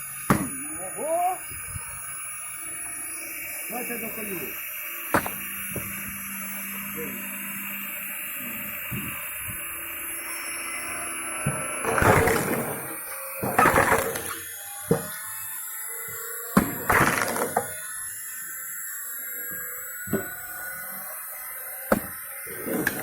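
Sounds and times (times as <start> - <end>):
log splitter motor running: 0.0 - 23.0
sharp wood crack: 5.1 - 5.4, 16.6 - 17.8
log crunching apart: 16.6 - 17.8.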